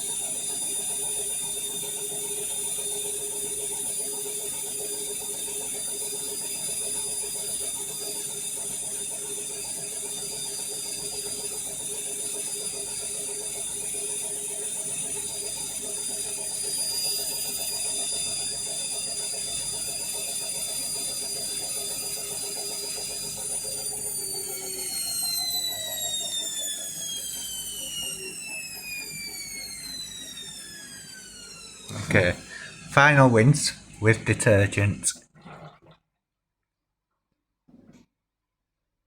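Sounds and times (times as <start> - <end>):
washing machine spinning: 0.0 - 35.1.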